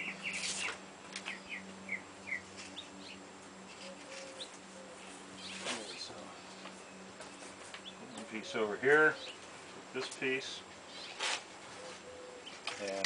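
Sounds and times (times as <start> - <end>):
faint steady hum: 0.0 - 13.0
small birds chirping: 0.0 - 13.0.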